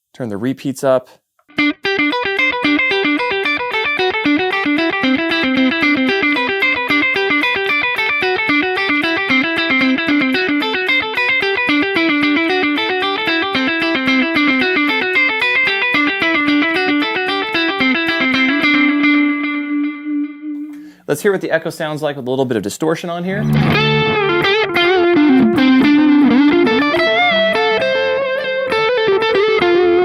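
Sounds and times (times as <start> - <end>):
electric guitar with delay echoes: 23.4 - 29.2.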